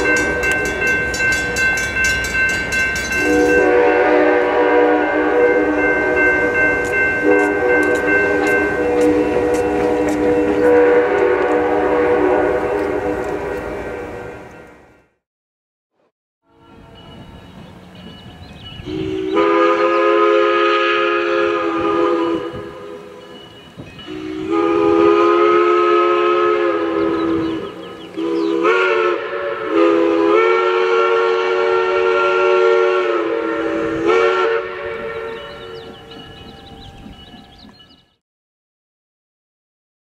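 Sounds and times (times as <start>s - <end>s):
train horn blasts: 0.0s - 1.7s, 3.1s - 14.9s, 16.5s - 17.2s, 18.8s - 23.4s, 24.1s - 37.0s.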